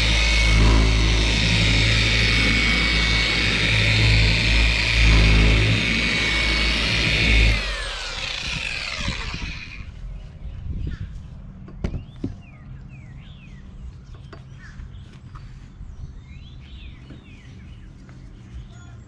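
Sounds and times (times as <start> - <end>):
small birds chirping: 9.8 - 19.0.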